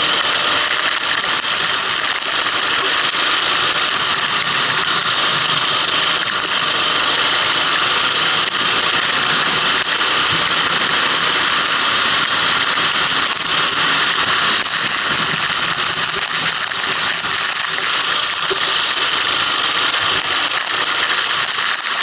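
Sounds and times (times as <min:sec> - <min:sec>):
kart engine running: 0:00.0 - 0:22.0.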